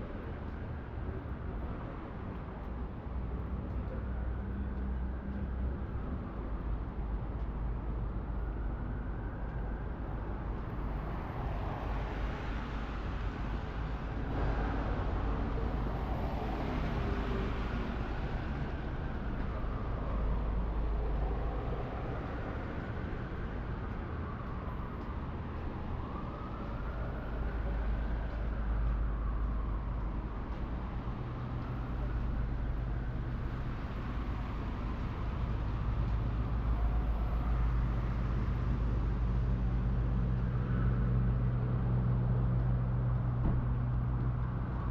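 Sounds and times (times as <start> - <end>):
city traffic rumble: 0.0 - 44.9
distant emergency siren wailing: 15.7 - 44.9.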